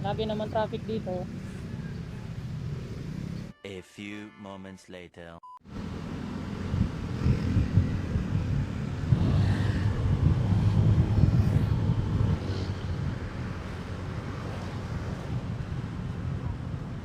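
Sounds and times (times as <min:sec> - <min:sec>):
wind rushing over microphone: 0:05.8 - 0:17.0.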